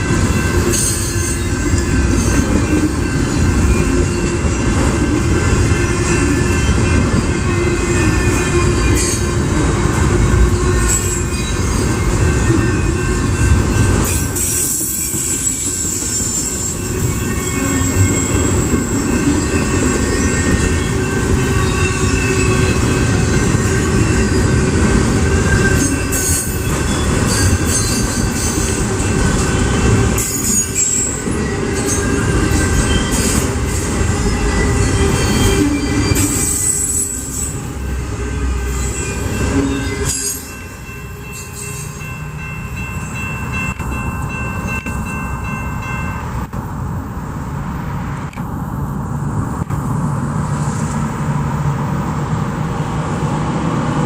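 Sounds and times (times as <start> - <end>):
train wheels rumbling on rail: 0.0 - 54.0
high-pitched wheel squeal: 14.0 - 40.5.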